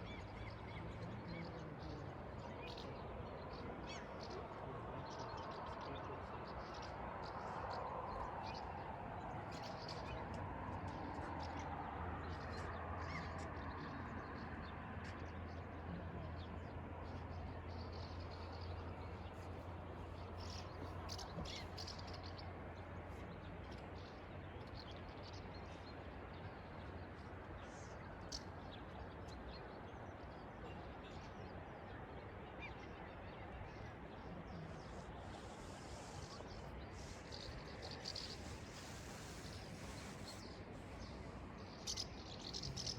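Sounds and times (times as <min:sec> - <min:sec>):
faint background wash: 0:14.8 - 0:42.9.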